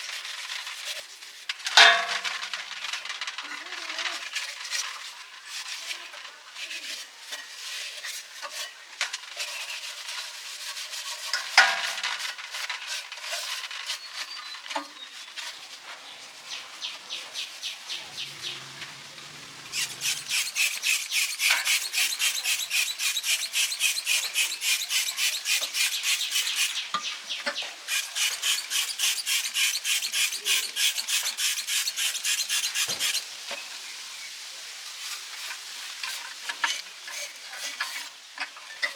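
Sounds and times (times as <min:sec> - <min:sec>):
hand scrubbing strokes: 0:17.8 - 0:26.8, 0:27.9 - 0:33.3
clicks and scrapes: 0:18.2 - 0:33.3.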